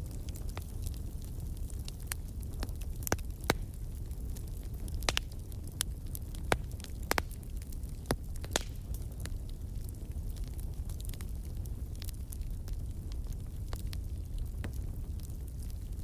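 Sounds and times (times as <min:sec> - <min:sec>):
bonfire crackles and pops: 0:00.0 - 0:16.0
fire low rumble: 0:00.0 - 0:16.0.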